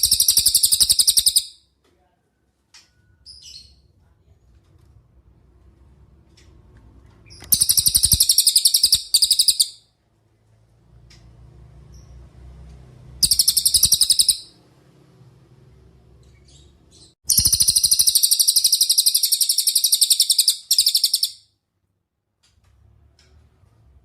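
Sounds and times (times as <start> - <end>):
songbird trilling: 0.0 - 1.5, 7.4 - 9.8, 13.2 - 14.5, 17.3 - 21.4.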